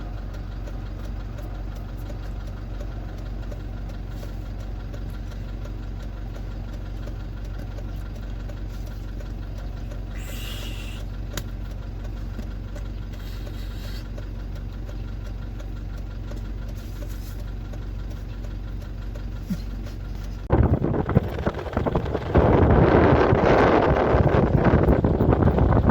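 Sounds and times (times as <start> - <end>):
engine humming: 0.0 - 25.9
wind buffeting microphone: 20.5 - 25.9.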